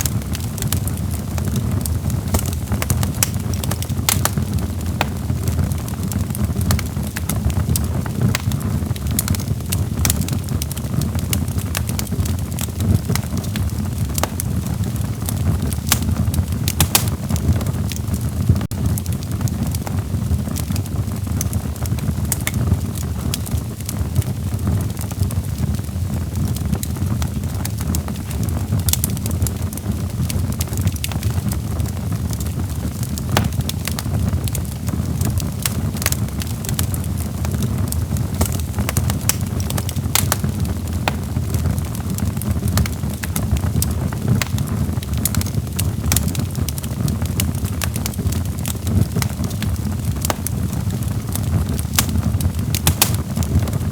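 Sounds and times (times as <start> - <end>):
sharp pops and snaps: 0.0 - 17.6, 33.1 - 34.1, 35.4 - 46.8, 47.4 - 53.7
log fire crackling: 0.0 - 53.9.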